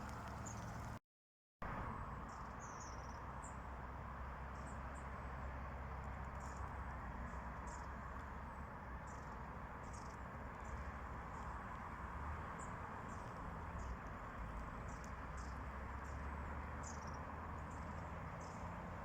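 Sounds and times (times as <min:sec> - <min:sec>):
small birds chirping: 0:00.0 - 0:01.0.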